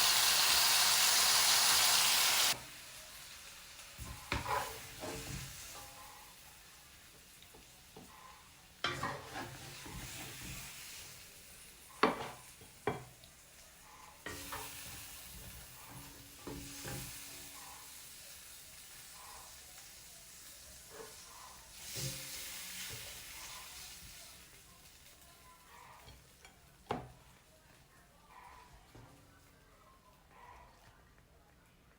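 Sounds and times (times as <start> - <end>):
food sizzling in oil: 0.0 - 27.8
utensil clacking on pan: 4.0 - 6.0, 8.8 - 10.8, 12.0 - 13.2.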